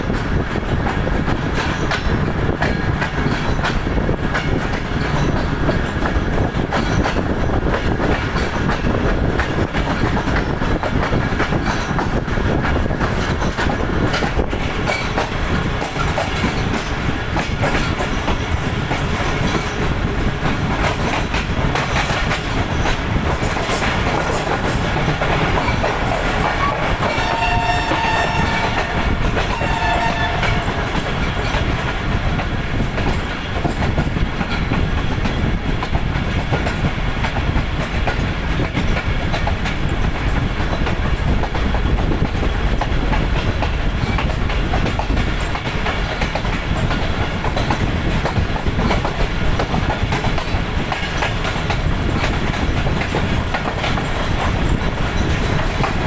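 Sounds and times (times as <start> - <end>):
train wheel clatter: 0.0 - 56.0
train horn: 26.6 - 31.0.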